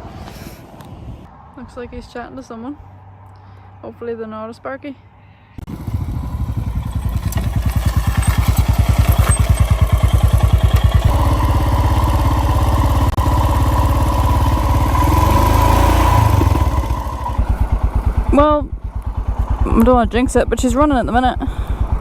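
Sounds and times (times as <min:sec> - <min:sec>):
motorcycle engine running: 0:05.6 - 0:22.0.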